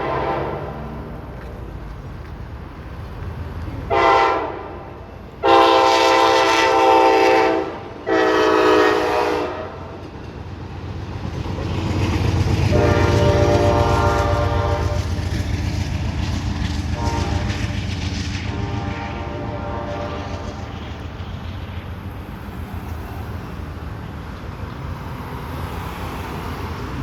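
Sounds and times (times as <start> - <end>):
multi-chime train horn blasts: 0.0 - 1.1, 3.9 - 9.9, 12.7 - 15.2, 16.9 - 17.7, 18.5 - 20.4
passing train rumble: 0.0 - 27.0.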